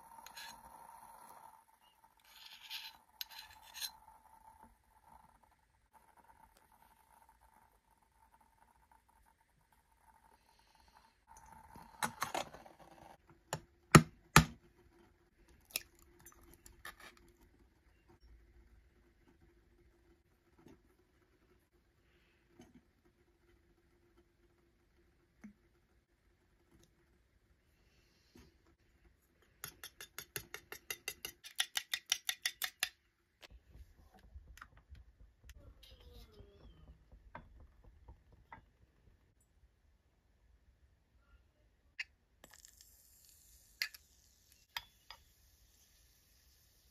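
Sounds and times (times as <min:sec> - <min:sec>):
egg knocking on steel pot rim: 0:29.6 - 0:33.0.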